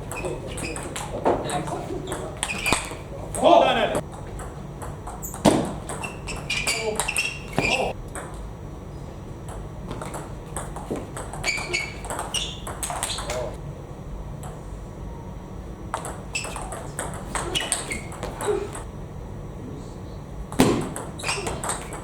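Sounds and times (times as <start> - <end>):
table tennis ball hits: 0.0 - 8.4, 9.4 - 13.6, 15.9 - 18.9, 20.5 - 22.0.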